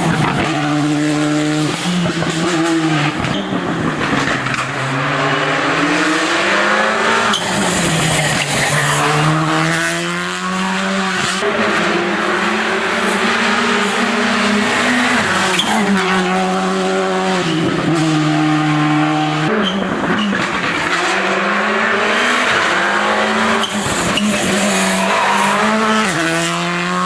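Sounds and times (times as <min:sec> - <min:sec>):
rally car engine revving: 0:00.0 - 0:27.0.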